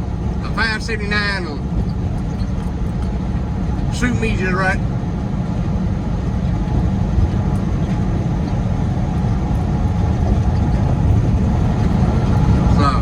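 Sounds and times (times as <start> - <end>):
road noise: 0.0 - 13.0
truck engine drone: 0.0 - 13.0.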